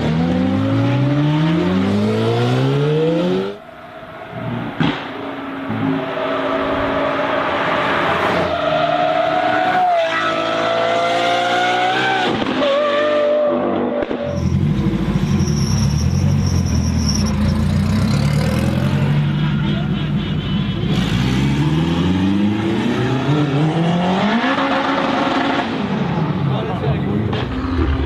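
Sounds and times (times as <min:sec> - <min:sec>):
car engine revving high: 0:00.0 - 0:03.6, 0:04.3 - 0:13.8, 0:20.9 - 0:26.3.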